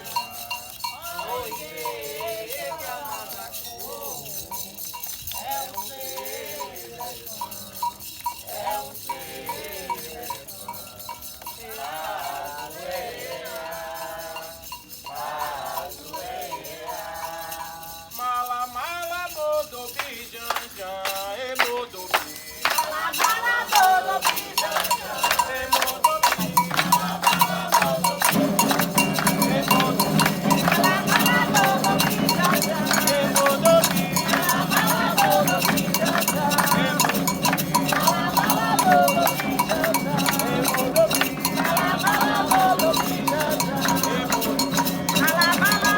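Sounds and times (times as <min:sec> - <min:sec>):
group of voices singing: 0:00.0 - 0:45.9
light shaken percussion: 0:00.0 - 0:45.9
person chanting: 0:20.5 - 0:45.9
heavy percussion: 0:21.6 - 0:45.9.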